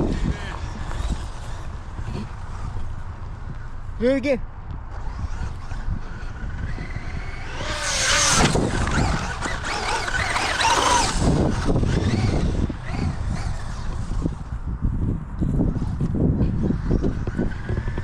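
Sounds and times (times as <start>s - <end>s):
electric motor whining: 0.0s - 3.9s, 4.9s - 14.6s, 15.6s - 18.0s.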